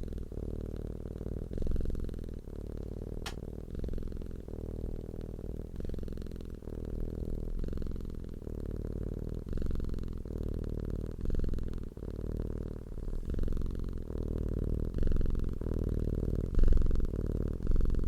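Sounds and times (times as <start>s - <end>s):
cat purring: 0.0s - 18.0s.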